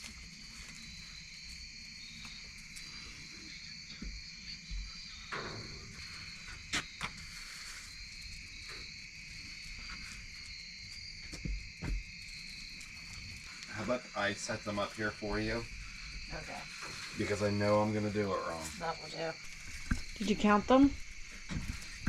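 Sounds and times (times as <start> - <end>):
crickets chirring: 0.0 - 22.0
handling knocks and rustles: 19.4 - 22.0.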